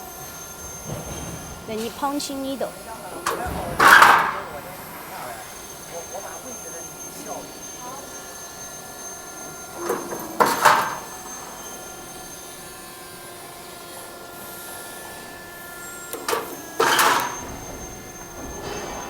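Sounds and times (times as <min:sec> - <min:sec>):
roll former humming and whining: 0:00.0 - 0:19.0
punch press click and clatter: 0:16.1 - 0:19.0.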